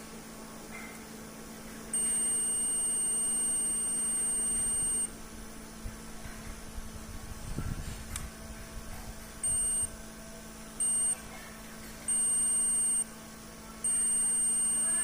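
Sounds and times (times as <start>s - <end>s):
faint low hum: 0.0s - 15.0s
high-pitched electronic beep: 2.0s - 5.1s, 9.4s - 9.9s, 10.8s - 11.2s, 12.1s - 13.1s, 13.8s - 15.0s.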